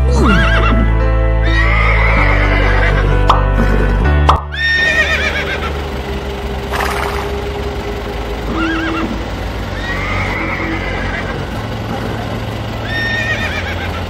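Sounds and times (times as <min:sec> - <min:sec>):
horse whinnying: 0:00.1 - 0:03.1, 0:04.5 - 0:05.7, 0:09.8 - 0:11.4, 0:12.9 - 0:13.9.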